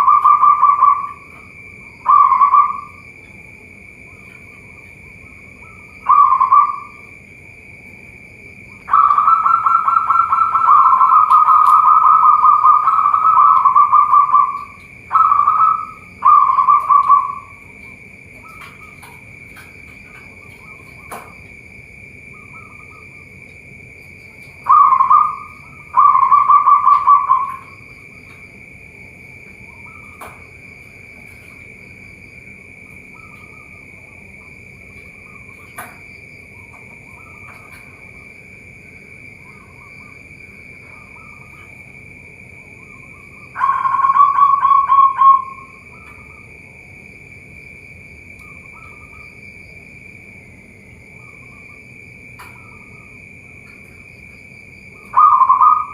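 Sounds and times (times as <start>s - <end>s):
dove cooing: 0.0s - 3.4s, 4.1s - 7.2s, 8.7s - 21.5s, 24.3s - 28.4s, 42.8s - 46.5s, 54.9s - 55.9s
high-pitched whine: 0.0s - 55.9s.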